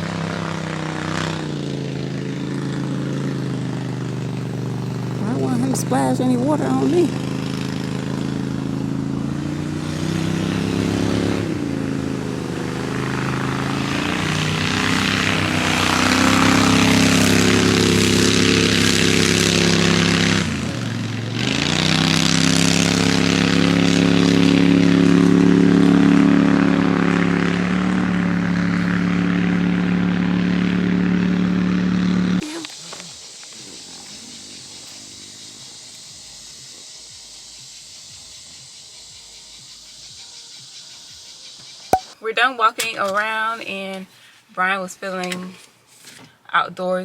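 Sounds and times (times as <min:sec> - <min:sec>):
boat engine running: 0:00.0 - 0:32.4.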